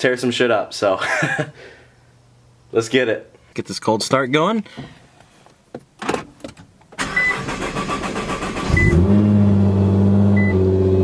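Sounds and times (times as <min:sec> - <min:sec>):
engine starter cranking: 0:07.0 - 0:09.2.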